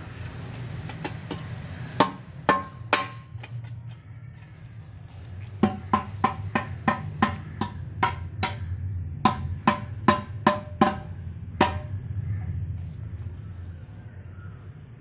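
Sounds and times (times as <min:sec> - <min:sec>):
steady low hum: 0:00.0 - 0:15.0
hammer striking metal: 0:00.9 - 0:03.5, 0:05.6 - 0:12.0.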